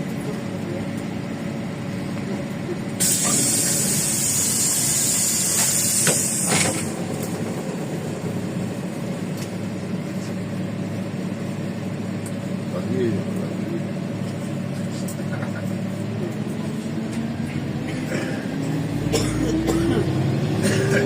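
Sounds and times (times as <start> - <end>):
diesel bus engine running: 0.0 - 21.0
pneumatic air hiss: 3.0 - 6.9.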